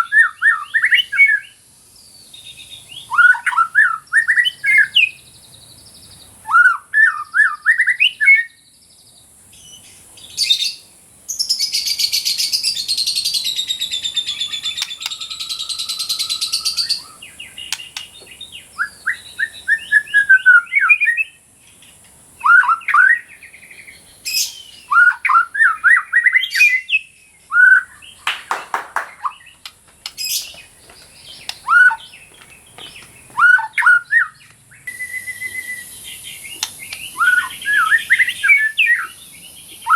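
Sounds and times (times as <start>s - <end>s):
bird whistling song: 0.0s - 8.7s, 9.5s - 39.9s
harsh buzzy bird chatter: 9.1s - 20.6s, 27.8s - 39.9s
steady high hiss: 9.2s - 25.2s, 26.2s - 39.9s.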